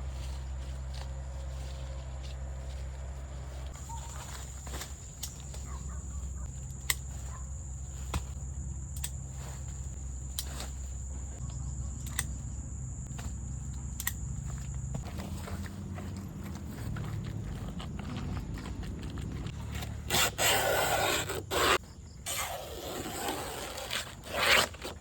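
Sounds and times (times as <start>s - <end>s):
steady low rumble: 0.0s - 19.6s
sharp clicks: 13.9s - 14.2s.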